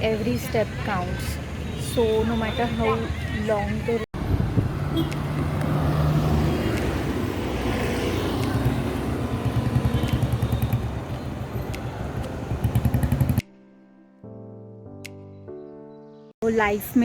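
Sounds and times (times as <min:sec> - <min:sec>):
street traffic noise: 0:00.0 - 0:13.5, 0:16.4 - 0:17.0.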